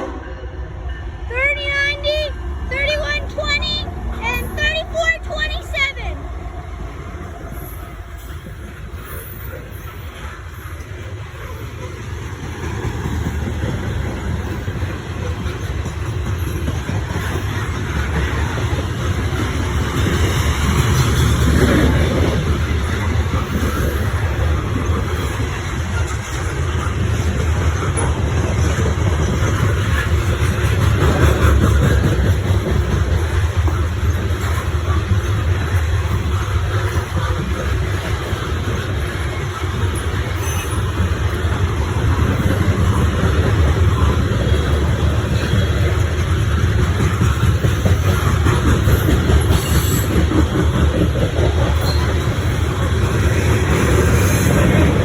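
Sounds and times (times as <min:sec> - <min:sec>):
steel train wheels on rails: 0:00.0 - 0:55.0.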